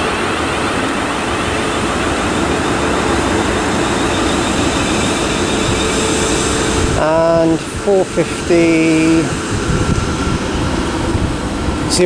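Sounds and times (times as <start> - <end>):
electrical hum from train: 0.0 - 12.0
train wheels on rail: 0.4 - 12.0.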